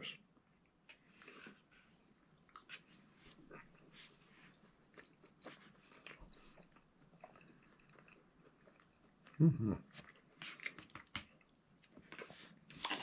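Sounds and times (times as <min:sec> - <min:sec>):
faint chewing: 0:00.6 - 0:13.0.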